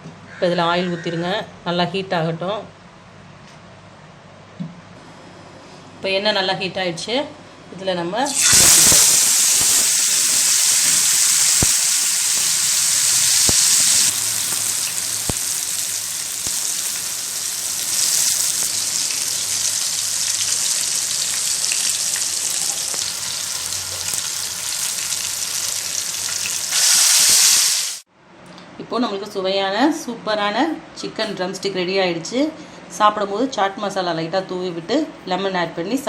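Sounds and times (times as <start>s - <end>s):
chicken sizzling in hot oil: 8.3s - 28.1s.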